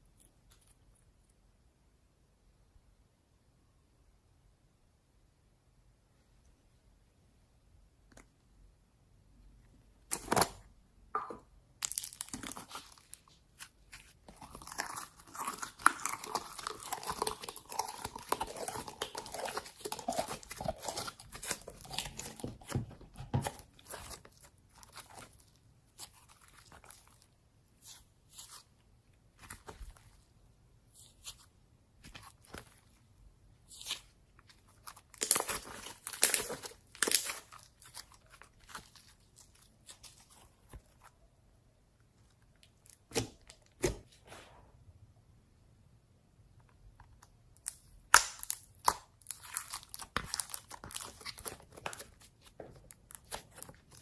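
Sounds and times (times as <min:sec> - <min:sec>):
slime crackling when squeezed: 0:35.0 - 0:38.9.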